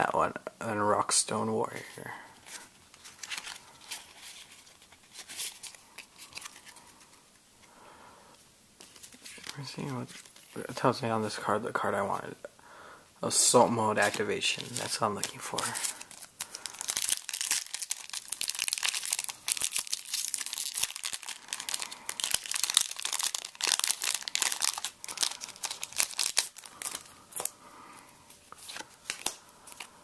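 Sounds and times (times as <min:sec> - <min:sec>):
foil wrapper crinkling and tearing: 0:14.0 - 0:27.6.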